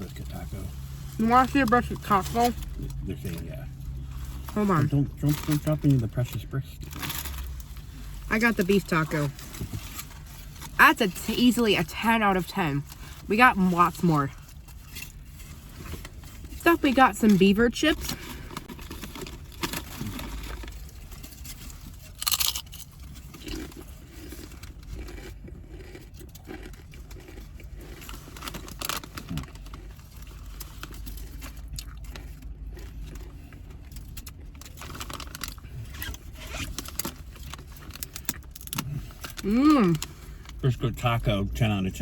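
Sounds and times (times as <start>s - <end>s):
potato chips crunching: 18.0s - 40.7s.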